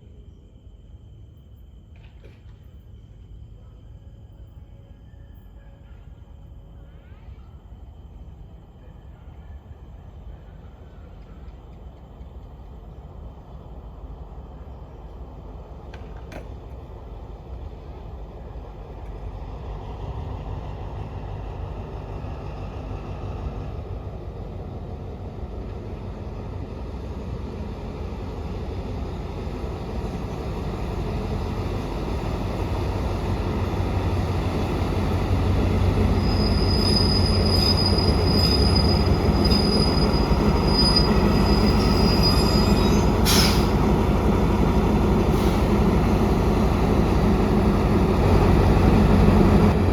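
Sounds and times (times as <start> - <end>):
train running past: 0.0 - 49.9
high wheel squeal: 35.3 - 43.9.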